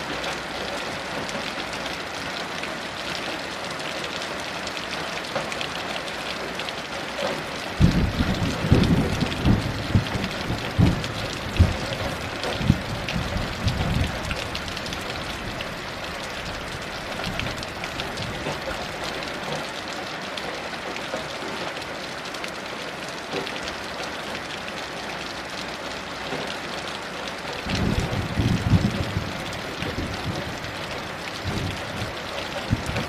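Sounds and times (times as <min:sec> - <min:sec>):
heavy rain falling: 0:00.0 - 0:33.0
thunder rumbling: 0:07.8 - 0:15.6, 0:27.6 - 0:33.0.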